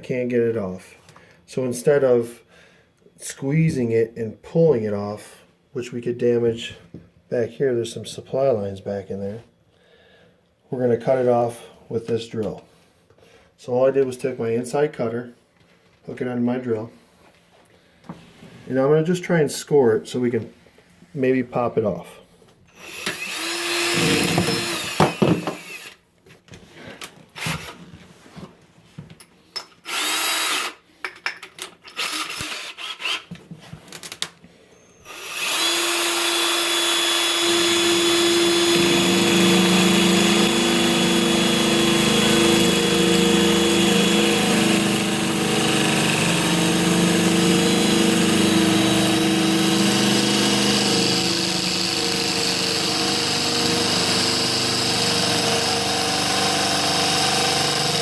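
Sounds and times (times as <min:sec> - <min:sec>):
drill cutting a metal nut: 0:22.7 - 0:26.0, 0:29.9 - 0:30.8, 0:34.8 - 0:58.0.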